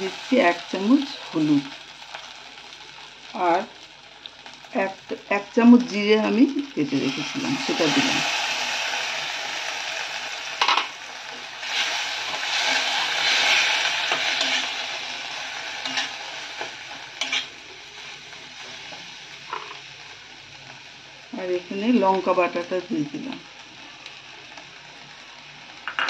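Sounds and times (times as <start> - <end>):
paste sizzling in hot oil: 0.0 - 25.9
spatula scraping a pan: 10.6 - 19.8.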